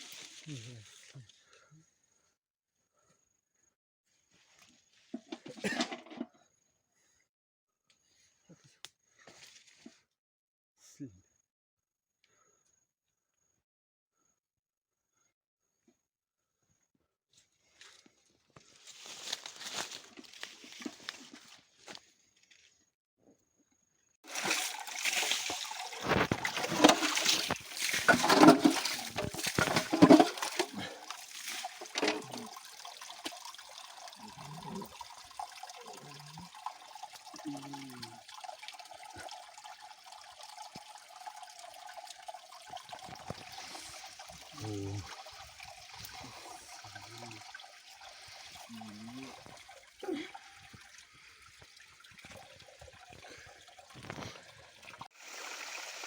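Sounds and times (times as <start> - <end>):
stream trickling: 24.2 - 56.0
water splashing and sloshing: 24.2 - 56.0
low voice sounds: 34.2 - 34.9, 35.8 - 36.5, 37.4 - 38.2, 44.5 - 45.1, 46.2 - 47.4, 48.7 - 49.4.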